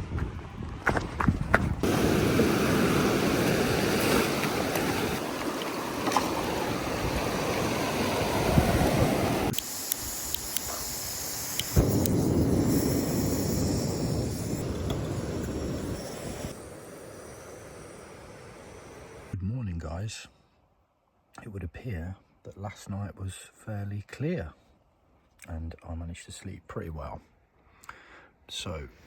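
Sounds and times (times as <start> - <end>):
wind on microphone: 0.0 - 16.6
sea surf washing: 1.8 - 19.4.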